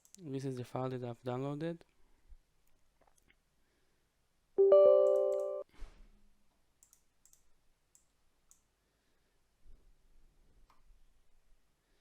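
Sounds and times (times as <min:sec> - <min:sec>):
computer alert chime: 0:04.6 - 0:05.6
faint mouse clicks: 0:06.8 - 0:08.7.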